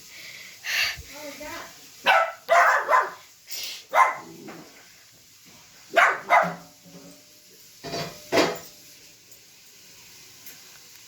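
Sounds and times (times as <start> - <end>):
dog barking: 2.0 - 3.3, 3.9 - 4.3, 5.9 - 6.7.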